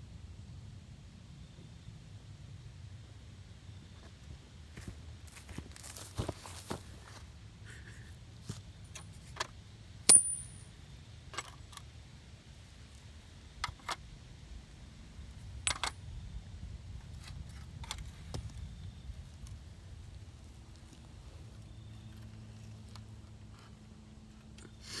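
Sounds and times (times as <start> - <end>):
metal sockets clinking: 10.1 - 10.6.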